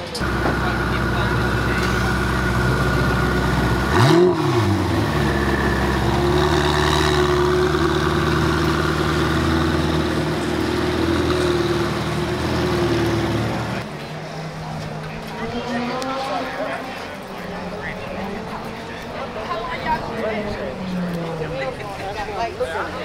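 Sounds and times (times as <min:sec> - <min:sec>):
sports car engine idling and revving: 0:00.0 - 0:16.2.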